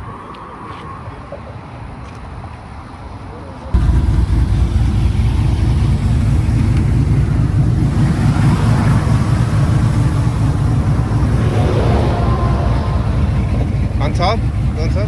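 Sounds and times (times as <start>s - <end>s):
motor vehicle engine rumbling: 3.7s - 15.0s.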